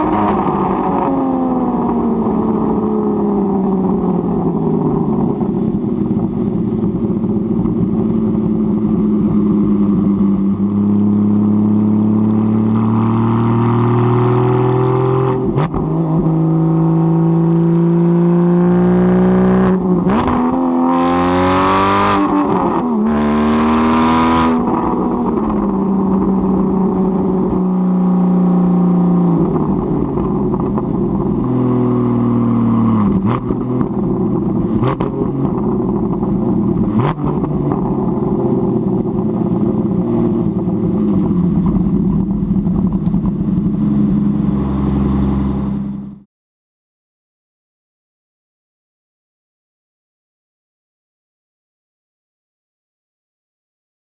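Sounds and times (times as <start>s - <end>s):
sports car engine revving: 6.2s - 46.2s
exhaust cracks: 33.0s - 44.3s.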